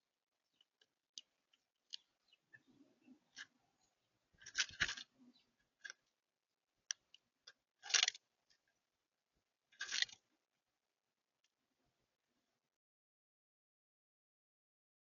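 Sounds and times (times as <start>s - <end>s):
birds cracking seed: 0.5s - 6.2s, 6.9s - 8.8s, 9.8s - 10.3s.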